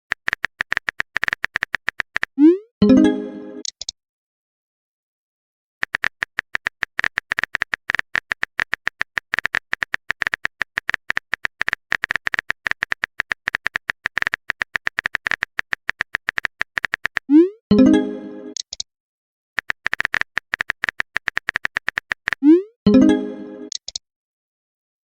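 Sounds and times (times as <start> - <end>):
keyboard typing clicks: 0.1 - 2.6, 5.8 - 17.4, 18.5 - 18.8, 19.6 - 24.0.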